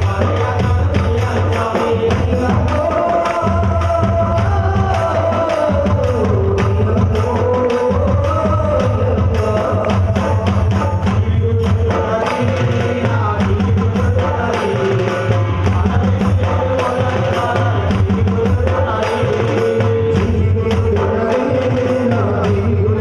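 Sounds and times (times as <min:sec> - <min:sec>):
devotional music: 0:00.0 - 0:23.0
hand drums: 0:00.0 - 0:23.0.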